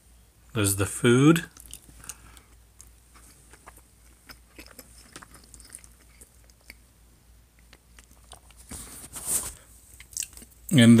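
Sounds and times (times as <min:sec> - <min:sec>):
person chewing food: 0:01.5 - 0:08.7, 0:09.9 - 0:10.6.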